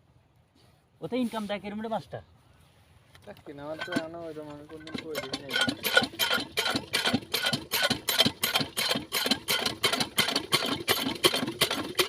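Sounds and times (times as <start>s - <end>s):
diesel engine knocking: 3.8s - 12.0s.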